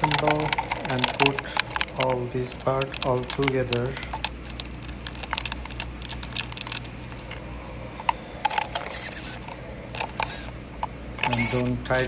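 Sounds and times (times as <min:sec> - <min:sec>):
plastic parts clicking and tapping: 0:00.0 - 0:07.4, 0:08.0 - 0:12.0
steady low hum: 0:00.0 - 0:12.0.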